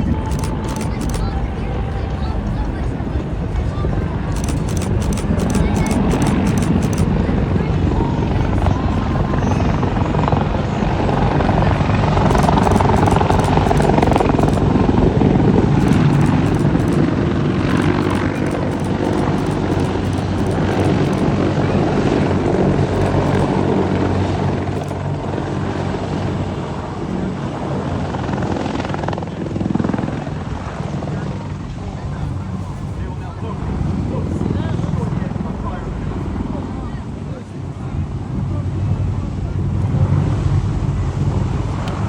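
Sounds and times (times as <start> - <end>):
engine whine: 0.0 - 29.1
helicopter rotors beating: 0.0 - 42.0.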